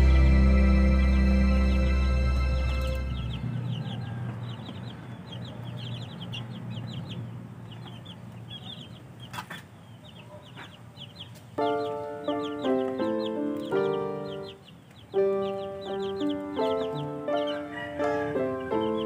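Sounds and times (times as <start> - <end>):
background music: 0.0 - 4.1, 11.6 - 19.0
baby chicks peeping: 0.0 - 19.0.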